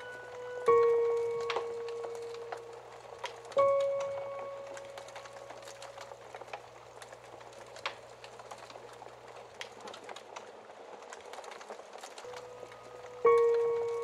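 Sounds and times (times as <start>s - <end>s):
sustained piano note: 0.0s - 6.6s, 12.2s - 14.0s
wood fire crackling: 0.0s - 14.0s.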